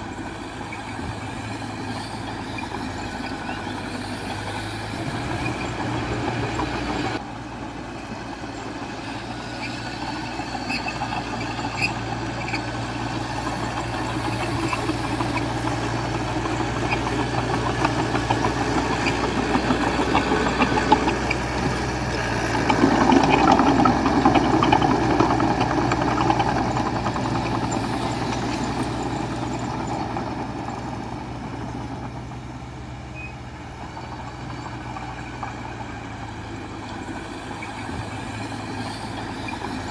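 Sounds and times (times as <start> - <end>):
heavy machinery diesel engine: 0.0 - 39.9
rattling clatter: 13.3 - 32.3.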